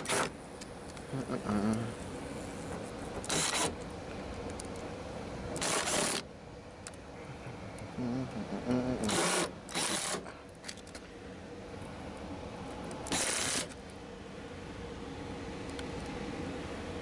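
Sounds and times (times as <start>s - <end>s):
impact driver rattling on screws: 9.1s - 10.2s.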